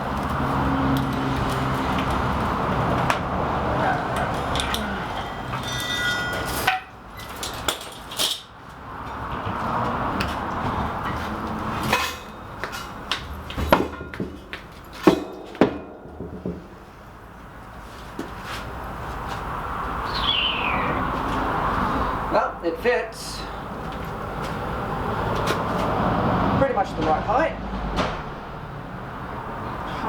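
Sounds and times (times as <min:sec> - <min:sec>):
anvil clanking: 0:04.1 - 0:07.0, 0:13.6 - 0:17.4
metal clinks and clanks: 0:04.1 - 0:08.5.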